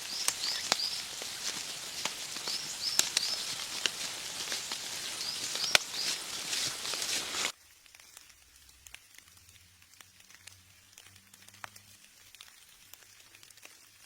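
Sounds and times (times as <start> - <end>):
bird chirping: 0.0 - 7.5
light ticks and patters: 0.0 - 14.0
steady high hiss: 0.0 - 14.0.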